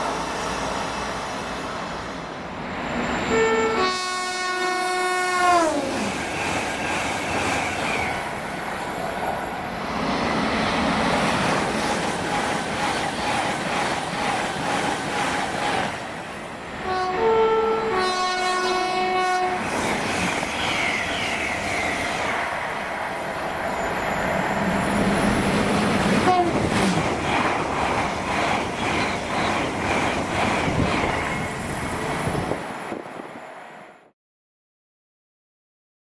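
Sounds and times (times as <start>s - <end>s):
rush of passing trains: 0.0s - 34.2s
train horn: 3.3s - 6.1s, 16.8s - 19.6s, 26.2s - 26.7s.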